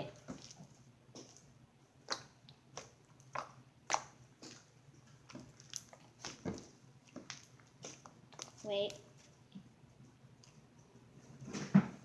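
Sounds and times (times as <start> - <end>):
slime clicking and popping: 2.0 - 4.7, 5.3 - 9.0.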